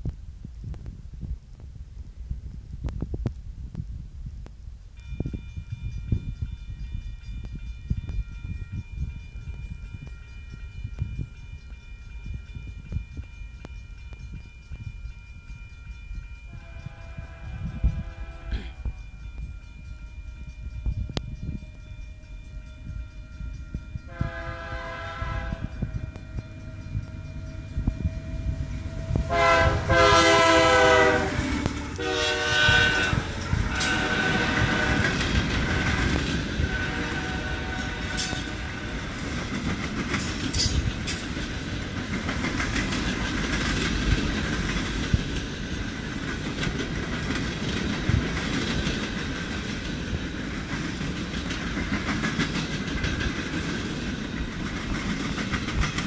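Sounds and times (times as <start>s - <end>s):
thin high tone: 5.0s - 29.6s
locomotive horn blasts: 16.5s - 19.0s, 24.0s - 39.0s
train wheels clattering over rails: 29.1s - 56.0s.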